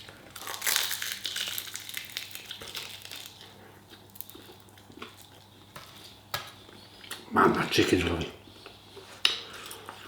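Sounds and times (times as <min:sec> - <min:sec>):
person chewing crunchy food: 0:00.0 - 0:07.3.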